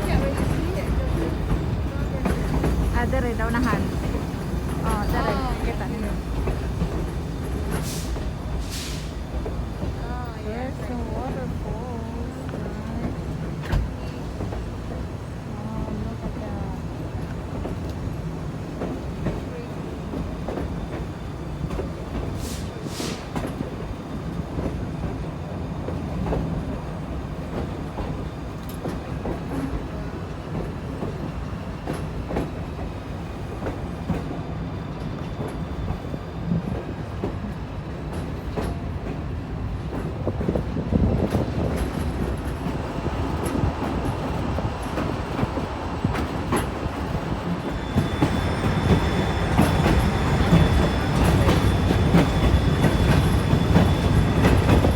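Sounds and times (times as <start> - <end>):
train rumbling on track: 0.0 - 54.9
faint high wheel squeal: 46.0 - 54.9.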